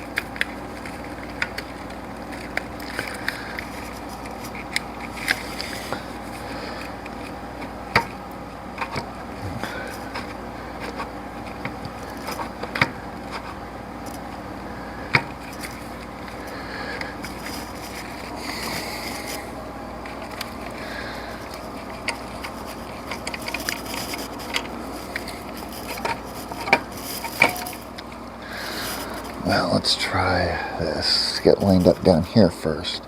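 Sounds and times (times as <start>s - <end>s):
tools clicking on metal engine parts: 21.4s - 28.1s.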